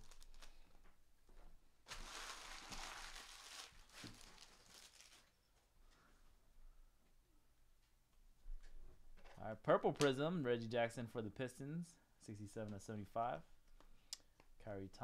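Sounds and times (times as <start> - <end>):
wrapper crinkling and tearing: 0.0 - 0.8, 1.9 - 5.4.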